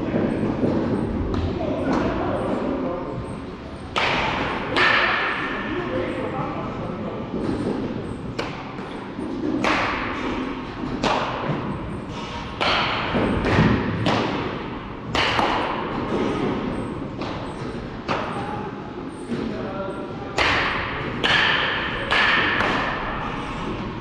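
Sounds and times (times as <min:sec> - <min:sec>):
bat striking baseball: 0:03.9 - 0:05.6, 0:12.5 - 0:16.5, 0:20.4 - 0:23.1.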